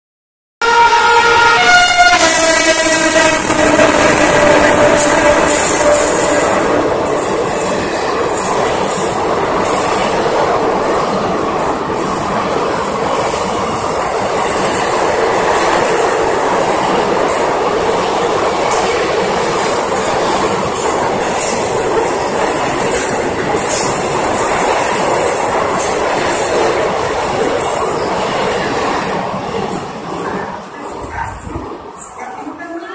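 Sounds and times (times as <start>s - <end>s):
train passing at speed: 0.6s - 32.9s.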